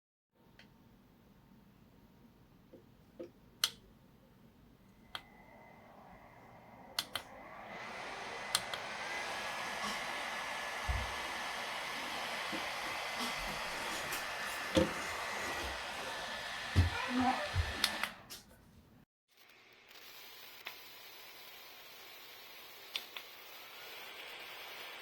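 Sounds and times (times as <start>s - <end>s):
fan motor whine and airflow: 5.0s - 18.3s
fan button clicks: 7.0s - 7.3s, 8.5s - 8.9s.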